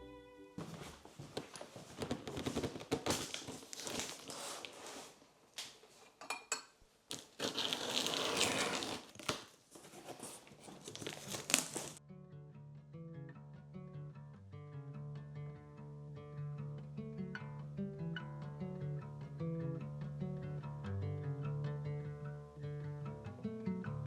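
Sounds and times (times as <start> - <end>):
crinkling and rustling: 0.6 - 6.2, 7.1 - 12.0.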